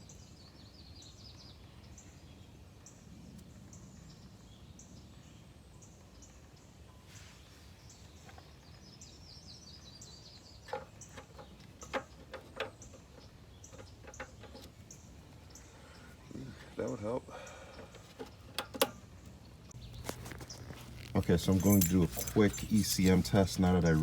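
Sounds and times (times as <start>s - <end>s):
faint bird chirping: 0.0s - 24.0s
sharp clicks and knocks: 10.7s - 14.9s, 17.9s - 23.4s.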